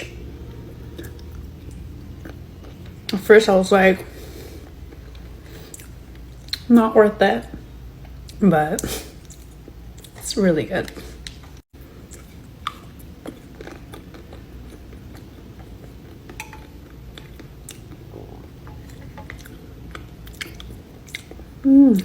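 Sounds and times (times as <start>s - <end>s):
person chewing pastry: 0.0s - 3.2s, 4.0s - 6.7s, 10.9s - 22.0s.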